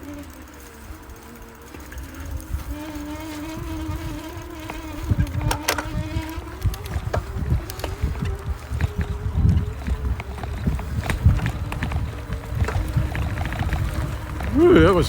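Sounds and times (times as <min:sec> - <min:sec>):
bike thumping and rattling: 0:00.0 - 0:15.0
electric motor whining: 0:00.0 - 0:15.0.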